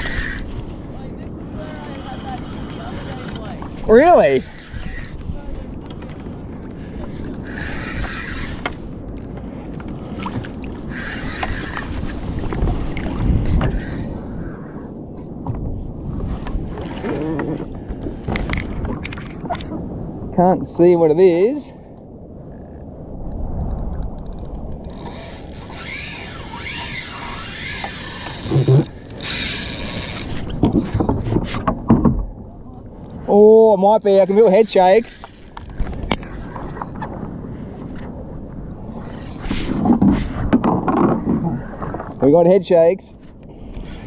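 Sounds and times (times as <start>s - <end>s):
water sloshing around kayak: 0.0s - 19.8s, 24.4s - 44.0s
wind buffeting microphone: 0.0s - 44.0s
fishing reel whirring and ratcheting: 7.5s - 8.7s, 22.5s - 22.8s, 24.0s - 31.0s, 34.0s - 35.9s, 39.2s - 39.7s.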